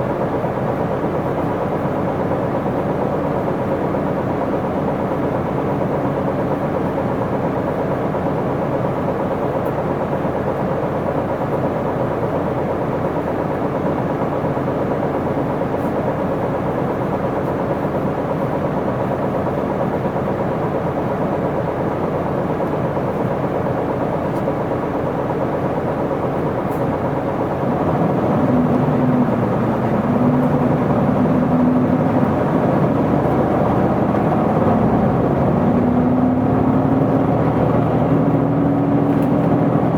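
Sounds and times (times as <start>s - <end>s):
bus diesel engine: 0.0s - 39.9s
road noise: 27.6s - 39.9s.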